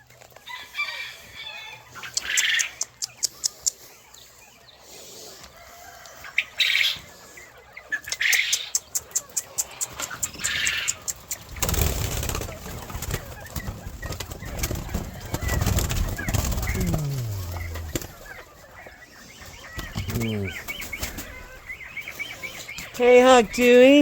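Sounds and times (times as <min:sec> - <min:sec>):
birds chirping and calling: 0:00.1 - 0:24.0
low falling bird calls: 0:06.6 - 0:24.0
rustling flapping noise: 0:11.5 - 0:18.3.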